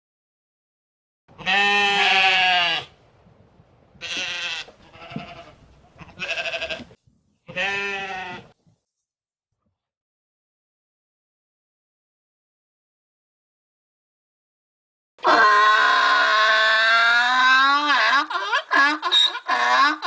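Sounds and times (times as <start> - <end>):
goat or sheep bleating: 1.4 - 2.9, 4.0 - 8.6.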